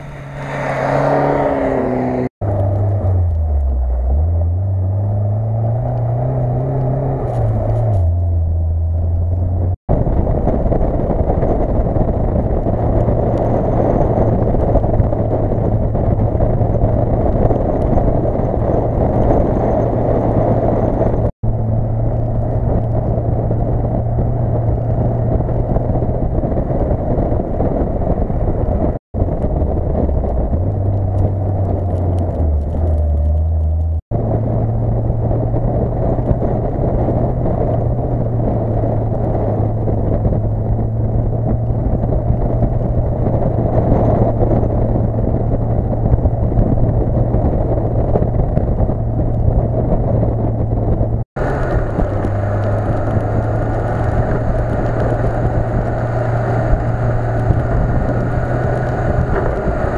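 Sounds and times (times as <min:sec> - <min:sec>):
tyres rushing through snow: 0:00.0 - 0:09.4, 0:51.4 - 0:59.9
car engine pulling: 0:00.0 - 0:59.9.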